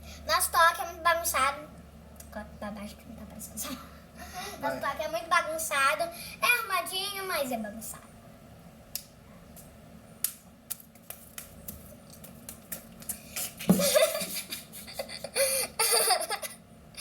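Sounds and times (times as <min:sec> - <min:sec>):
children's hand claps and slaps: 0:10.2 - 0:13.9
children laughing: 0:13.6 - 0:16.6.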